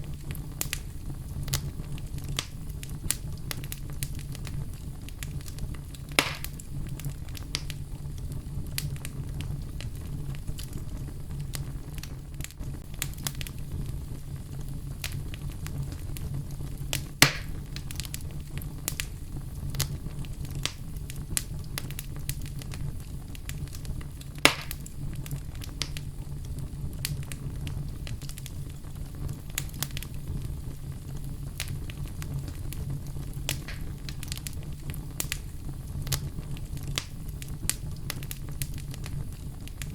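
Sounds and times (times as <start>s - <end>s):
fire crackling: 0.0s - 39.9s
fire flames rumbling: 0.0s - 39.9s
sharp pops from fire: 0.0s - 39.9s.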